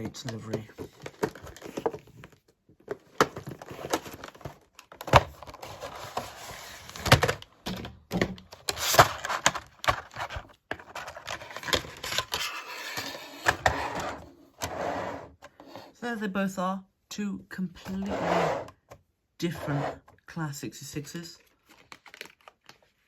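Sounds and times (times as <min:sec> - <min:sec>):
plastic crinkling: 0:21.4 - 0:23.0.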